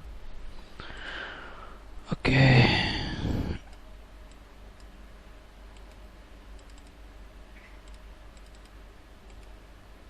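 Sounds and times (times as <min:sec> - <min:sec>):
low hum: 0:00.0 - 0:10.0
keyboard and mouse clicks: 0:05.7 - 0:07.0, 0:07.6 - 0:09.6.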